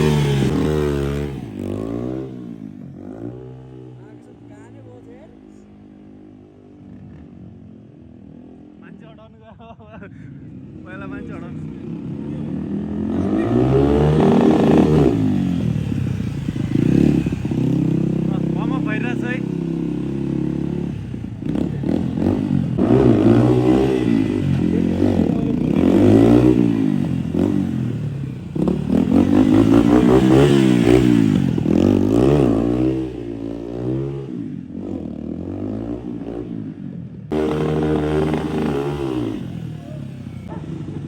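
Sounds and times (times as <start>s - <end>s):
motorcycle engine revving: 0.0s - 9.0s, 10.5s - 41.0s.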